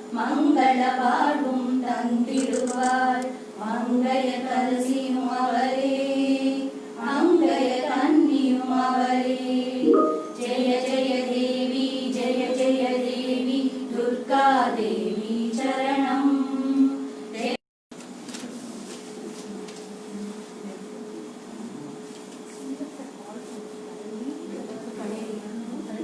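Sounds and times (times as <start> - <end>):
group singing in unison: 0.1 - 17.6.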